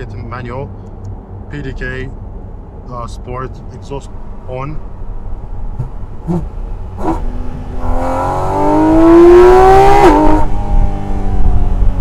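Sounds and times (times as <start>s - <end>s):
gear upshift rev drop: 5.7s - 10.9s
car engine accelerating hard: 5.7s - 12.0s.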